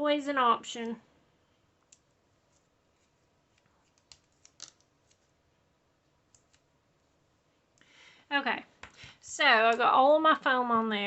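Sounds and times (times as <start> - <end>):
paper pieces clicking and rustling: 3.8 - 5.3.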